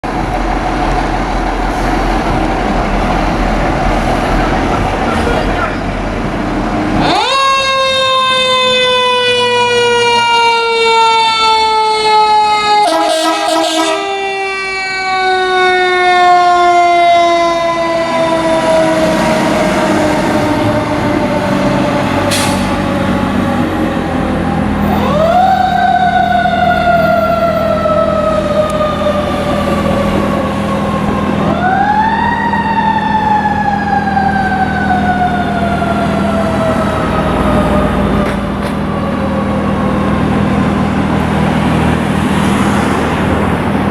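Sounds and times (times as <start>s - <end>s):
mechanical siren wailing: 6.9s - 22.2s, 24.0s - 41.4s.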